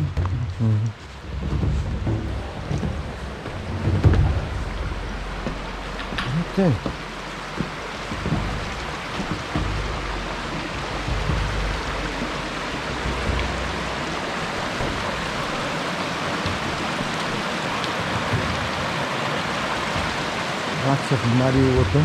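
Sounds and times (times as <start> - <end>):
river rushing: 0.0 - 22.0.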